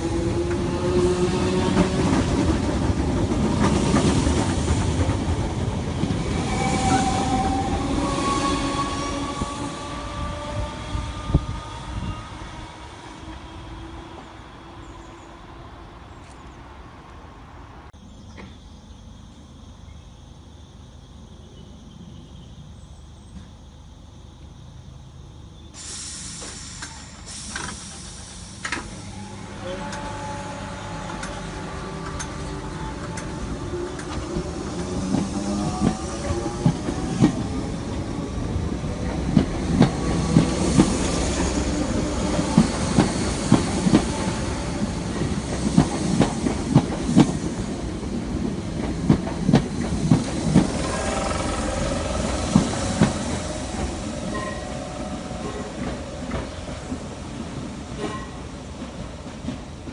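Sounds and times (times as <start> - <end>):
wheels rumbling: 49.5 - 57.5
train motor whine: 50.1 - 57.3
steady squeal: 50.3 - 56.9.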